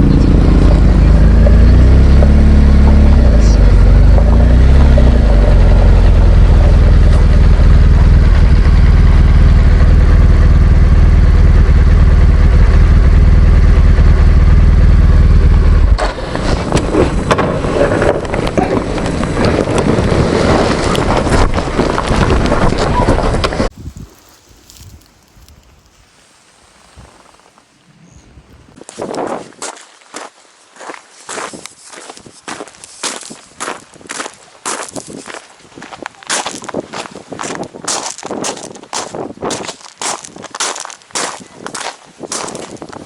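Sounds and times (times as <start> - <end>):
motorcycle engine running: 0.0 - 23.7
wind rumble: 0.0 - 29.5, 34.9 - 43.0.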